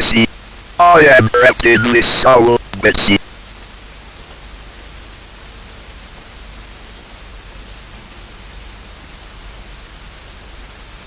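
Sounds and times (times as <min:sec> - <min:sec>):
static hiss: 0:00.0 - 0:03.6.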